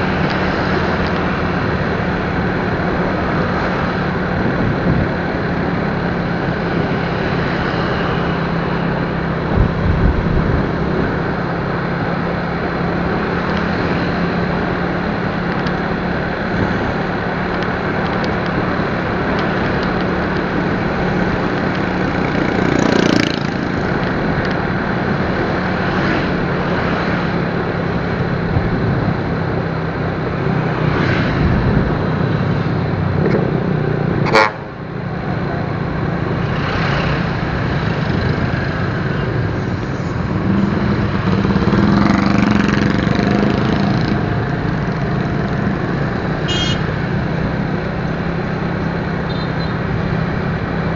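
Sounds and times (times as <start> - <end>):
motorcycle engine hum: 0.0 - 50.9
wind and road noise: 0.0 - 50.9.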